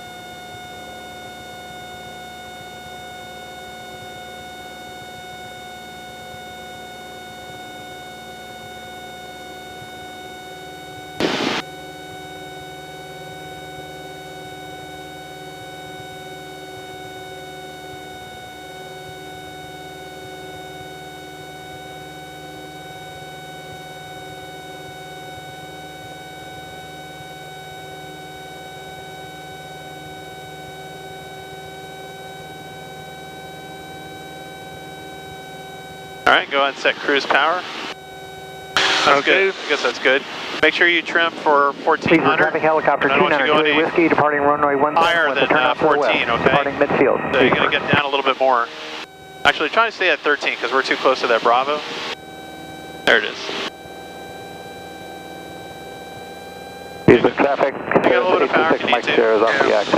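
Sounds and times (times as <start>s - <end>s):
small plane engine droning: 0.0s - 59.9s
loud burst of noise: 11.2s - 11.7s, 38.7s - 44.1s, 57.1s - 59.9s.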